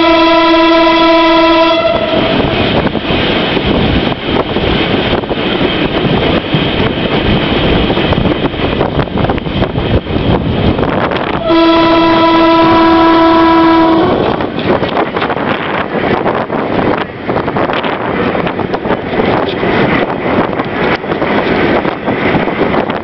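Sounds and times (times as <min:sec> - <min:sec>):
train horn blast: 0:00.0 - 0:02.8, 0:11.3 - 0:14.4
train rumbling on track: 0:00.0 - 0:23.0.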